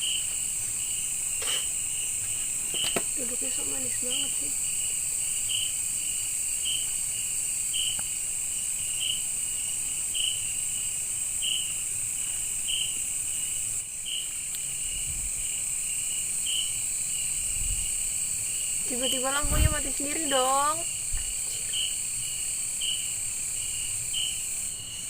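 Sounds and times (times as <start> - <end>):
crickets shrilling: 0.0 - 25.0
repeating insect chirp: 0.0 - 25.0.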